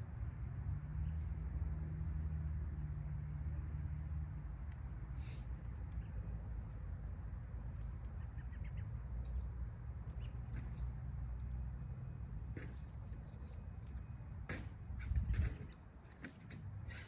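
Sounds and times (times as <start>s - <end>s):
wood fire crackling and popping: 3.7s - 16.8s.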